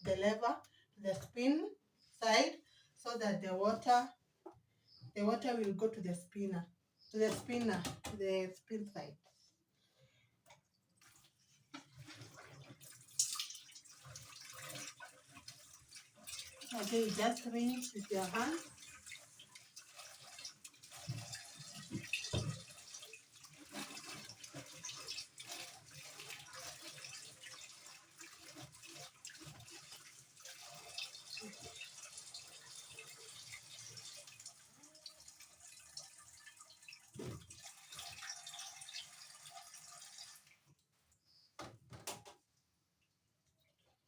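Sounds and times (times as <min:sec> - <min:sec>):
water running and splashing: 0:11.0 - 0:40.6.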